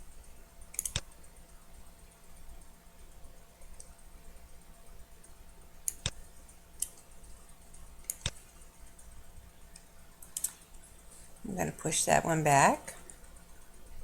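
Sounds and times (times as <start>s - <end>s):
computer mouse clicking: 0.6s - 1.5s, 3.6s - 4.0s, 5.2s - 9.1s, 9.7s - 10.8s.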